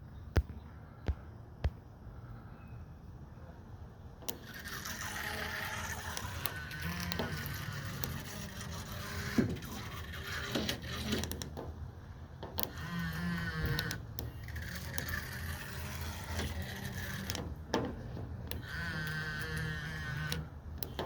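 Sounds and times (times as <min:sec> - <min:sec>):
small electric motor humming: 0:04.2 - 0:11.6, 0:12.4 - 0:21.0
sharp clicks and knocks: 0:04.2 - 0:21.0.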